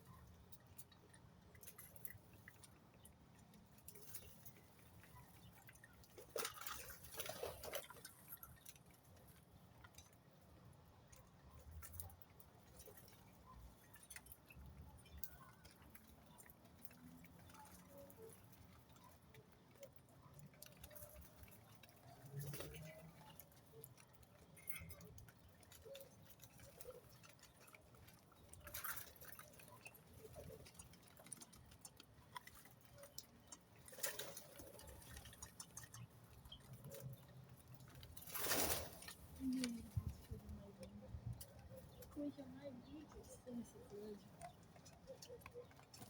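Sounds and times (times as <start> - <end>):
soft rustles: 33.8 - 46.0.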